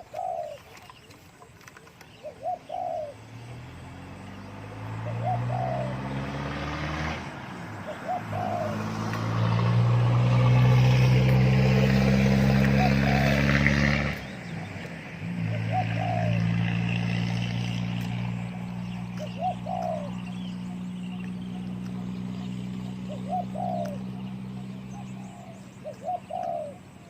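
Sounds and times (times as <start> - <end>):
dove cooing: 0.0 - 3.3, 4.8 - 6.2, 7.8 - 27.0.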